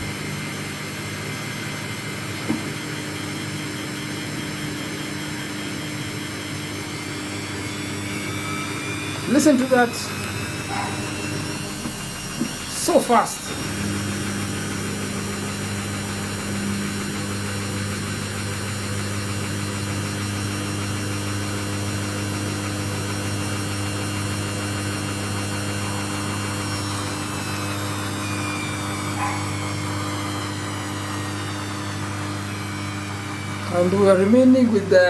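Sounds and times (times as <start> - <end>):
washing machine drum spinning: 0.0 - 34.8.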